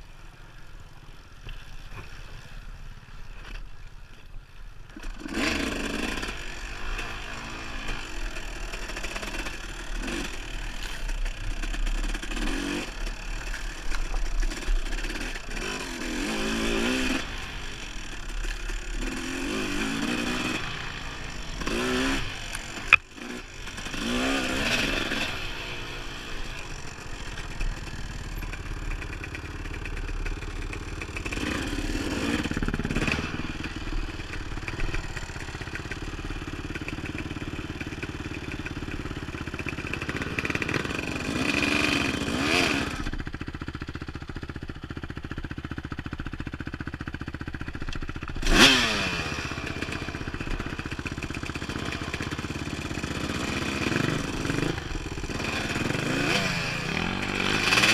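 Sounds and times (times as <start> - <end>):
dirt bike engine revving: 5.0 - 57.9.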